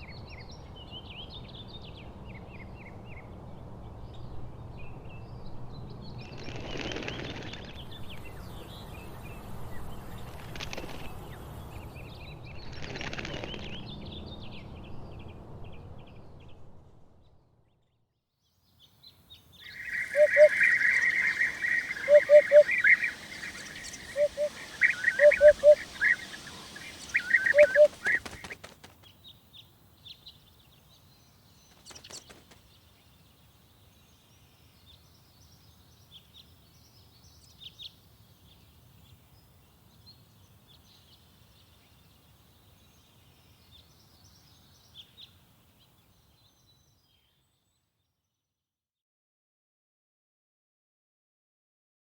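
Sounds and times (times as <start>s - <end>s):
birds chirping: 19.5s - 28.7s
faint high chirps: 19.6s - 28.5s
hoopoe calling: 19.6s - 28.6s.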